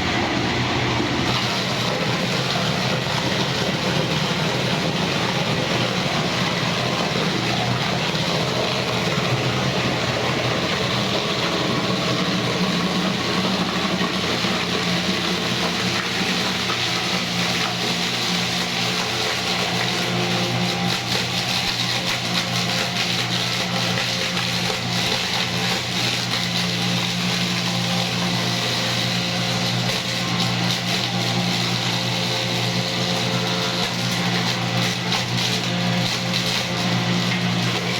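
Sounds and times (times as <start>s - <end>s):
electric meat grinder humming: 0.0s - 37.9s.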